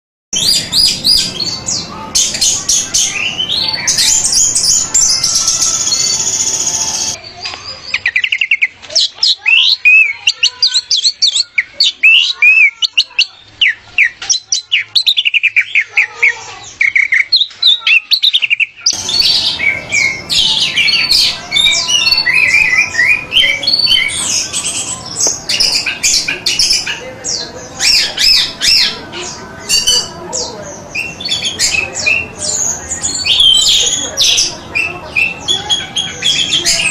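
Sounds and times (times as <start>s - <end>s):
thrush singing whistled notes: 0.4s - 7.2s, 16.8s - 26.8s
background noise: 0.4s - 36.9s.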